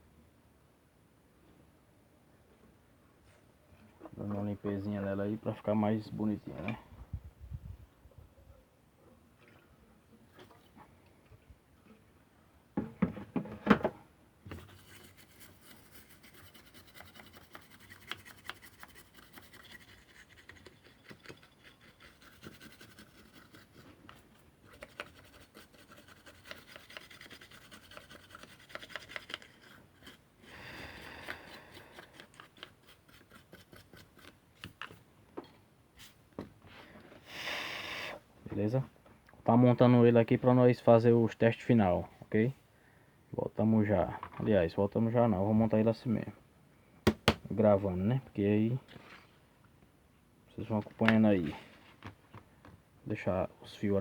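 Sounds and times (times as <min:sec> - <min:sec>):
knocking handling noise: 0:12.8 - 0:14.6, 0:47.0 - 0:47.5
scratchy rubbing of circuit board: 0:14.7 - 0:23.8, 0:24.7 - 0:30.2.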